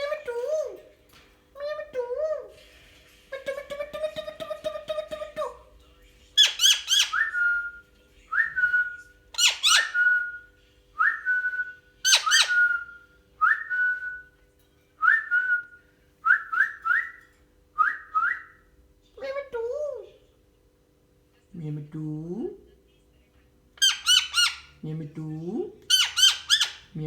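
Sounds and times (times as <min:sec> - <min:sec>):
parrot harsh screeches: 0:25.9 - 0:26.9.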